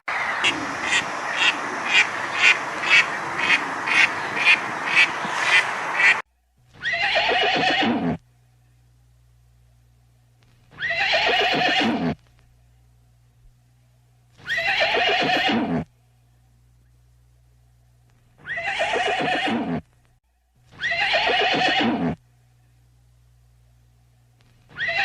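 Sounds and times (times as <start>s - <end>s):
horse whinnying: 6.8s - 8.2s, 10.8s - 12.2s, 14.5s - 15.8s, 18.4s - 19.8s, 20.8s - 22.2s, 24.7s - 25.0s.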